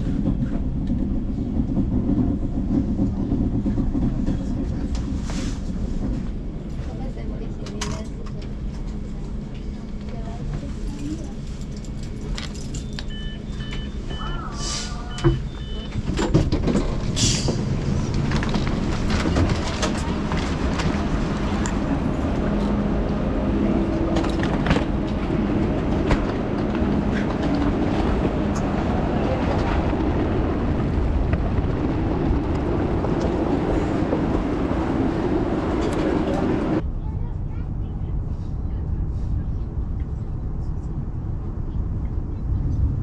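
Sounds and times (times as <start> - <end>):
train rumbling: 0.0 - 43.0
electronic beeps: 12.8 - 16.0.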